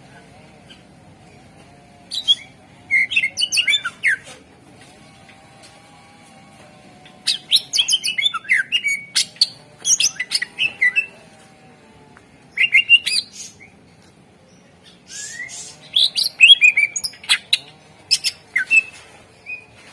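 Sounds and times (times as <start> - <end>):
bird singing chatter and whistles: 2.1 - 4.3, 7.2 - 11.2, 12.5 - 13.8, 14.5 - 19.8.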